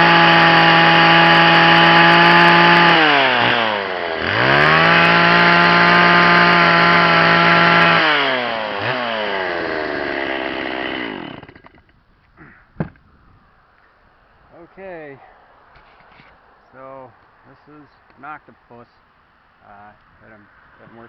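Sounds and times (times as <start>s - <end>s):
chainsaw carving wood: 0.0s - 11.9s.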